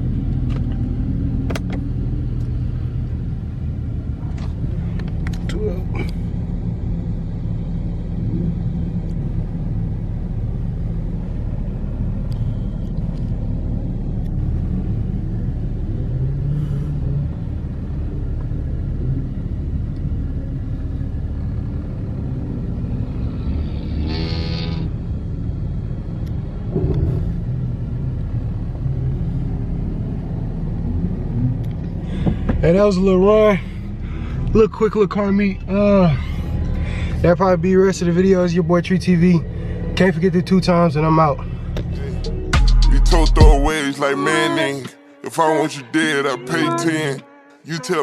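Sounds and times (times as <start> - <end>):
car engine and road noise: 0.0 - 48.0
rising pitched sound: 41.9 - 48.0.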